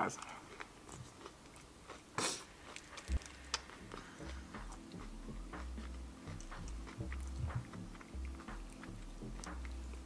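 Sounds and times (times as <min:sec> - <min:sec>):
crunchy chewing: 0:00.1 - 0:10.0
low muffled thumps: 0:06.5 - 0:07.9.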